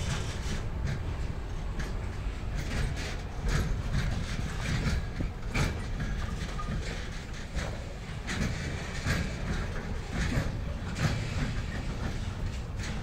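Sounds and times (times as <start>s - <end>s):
freight train rumble: 0.0s - 13.0s
wheels clacking over rail joints: 0.0s - 13.0s.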